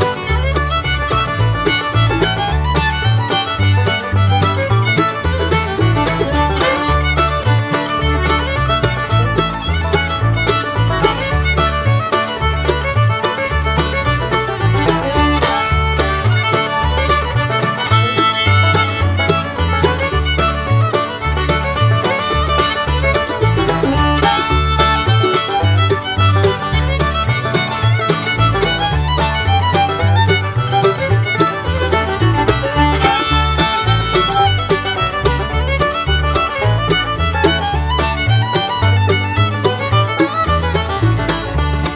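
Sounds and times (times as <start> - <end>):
fast fiddle tune over bass beat: 0.0 - 41.9.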